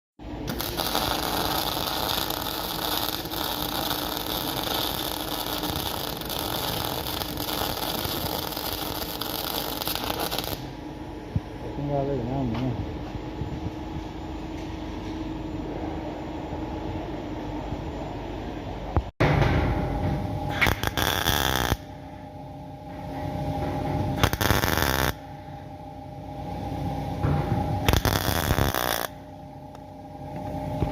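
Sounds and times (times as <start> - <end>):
welding arc crackling sizzle: 0.2 - 10.7, 20.5 - 21.9, 24.2 - 25.2, 27.8 - 29.3
steady hum: 0.2 - 30.9.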